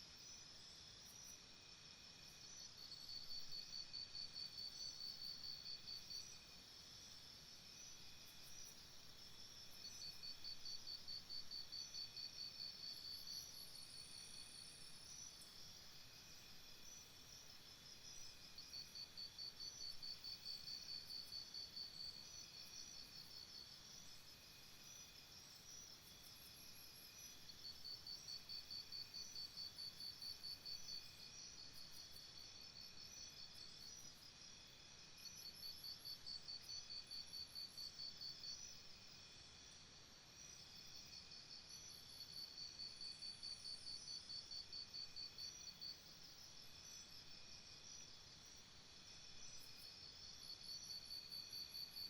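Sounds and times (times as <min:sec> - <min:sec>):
insects buzzing and chirping: 0:00.1 - 0:52.0.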